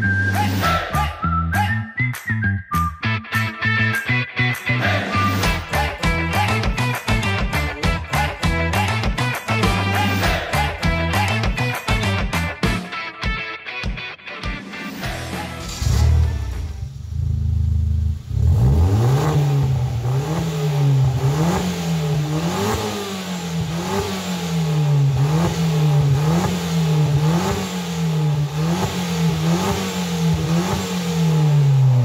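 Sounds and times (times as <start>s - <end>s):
car engine revving: 15.2s - 32.0s.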